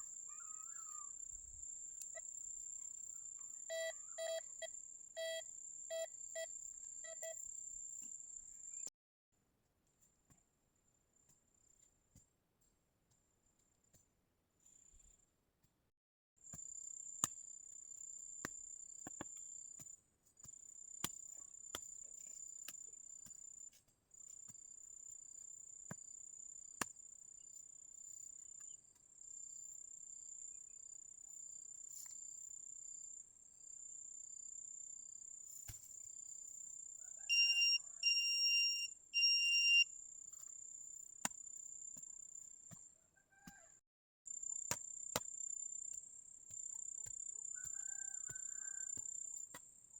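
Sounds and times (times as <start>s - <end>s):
insects trilling: 0.0s - 1.4s, 2.0s - 7.6s, 37.0s - 39.8s
short electronic beeps: 5.2s - 6.5s, 37.3s - 39.8s.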